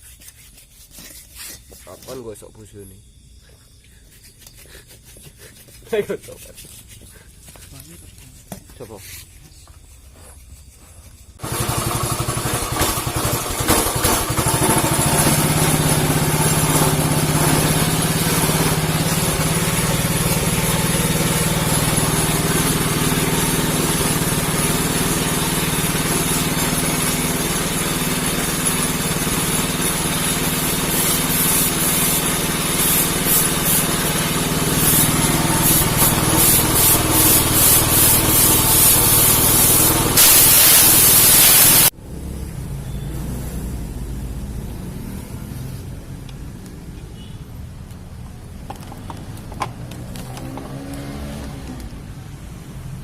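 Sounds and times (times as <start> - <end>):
scooter engine starting and running: 11.4 - 45.6, 47.2 - 53.0.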